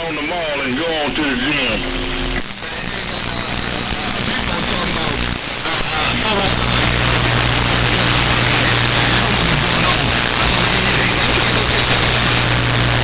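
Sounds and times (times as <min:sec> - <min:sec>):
radio static hissing: 0:01.4 - 0:13.0
constant low hum: 0:06.2 - 0:13.0.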